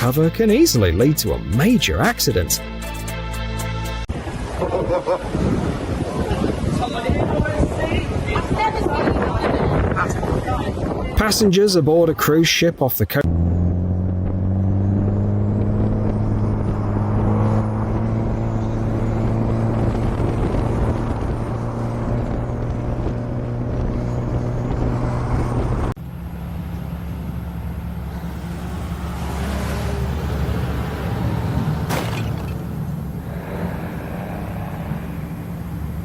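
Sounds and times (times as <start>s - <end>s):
low engine drone: 13.2s - 36.0s.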